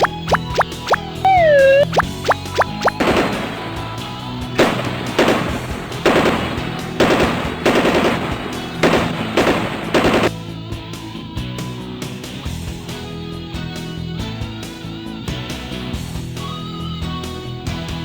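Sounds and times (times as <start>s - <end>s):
background music: 0.0s - 18.0s
machine-gun fire: 2.4s - 10.4s.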